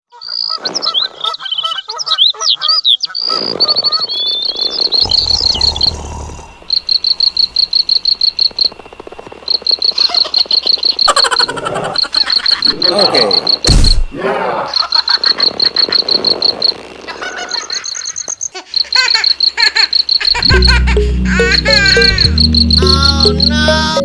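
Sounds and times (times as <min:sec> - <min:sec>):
bird chirps: 0:00.2 - 0:06.1, 0:18.4 - 0:24.0
rapid repeating high chirp: 0:18.8 - 0:24.0.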